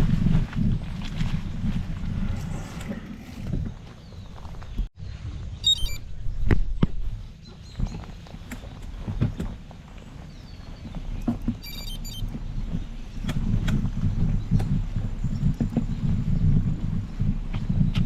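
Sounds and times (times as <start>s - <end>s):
bike tyres rumbling: 0.0s - 4.9s, 6.6s - 18.0s
knocks and rattles from bumps: 7.6s - 18.0s.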